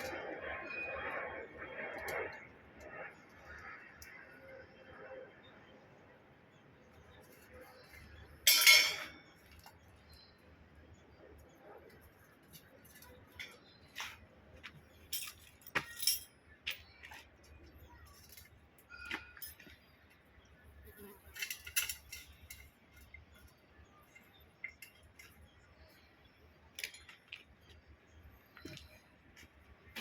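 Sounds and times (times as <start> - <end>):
metal parts clinking: 8.4 - 9.7, 15.0 - 16.4, 21.3 - 23.5.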